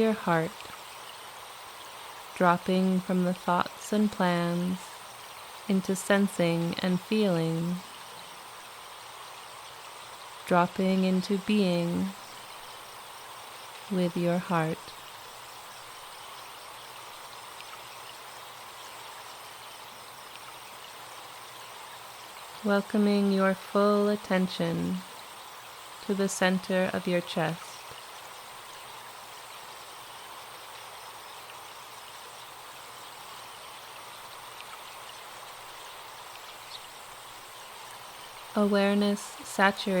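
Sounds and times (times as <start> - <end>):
forest stream running: 0.0 - 40.0
faint bird chirps: 27.4 - 38.6.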